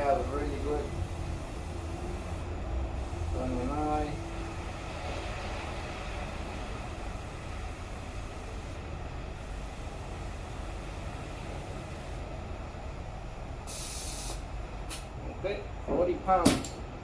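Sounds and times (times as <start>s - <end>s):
compressed air hissing into tire: 0.0s - 5.0s, 6.3s - 12.4s, 13.6s - 15.1s.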